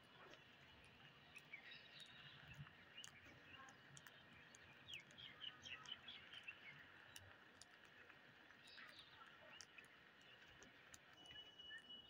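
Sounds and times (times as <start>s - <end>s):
faint bird chirps: 11.2s - 12.0s.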